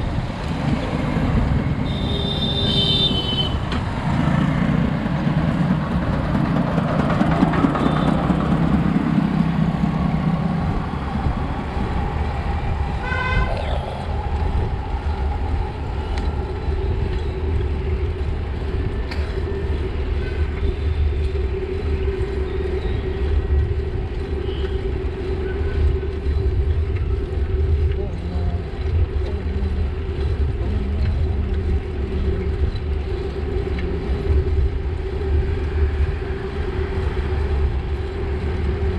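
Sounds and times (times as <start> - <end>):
road traffic rumble: 0.0 - 38.9
car horn honk: 1.9 - 3.6, 13.0 - 13.6.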